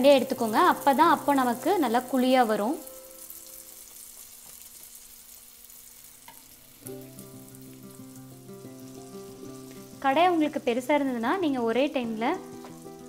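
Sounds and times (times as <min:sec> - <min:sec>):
soft background music: 0:00.0 - 0:04.0, 0:06.6 - 0:13.0
batter sizzling in hot oil: 0:00.0 - 0:13.0.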